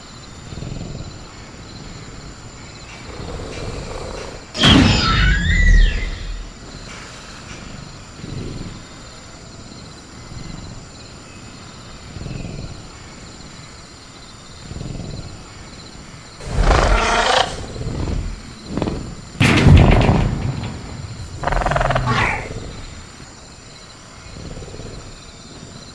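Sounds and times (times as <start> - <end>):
crickets chirring: 0.0 - 25.9
creature growling roar: 16.4 - 18.4, 21.4 - 22.9
soft low creature sounds: 16.4 - 23.2.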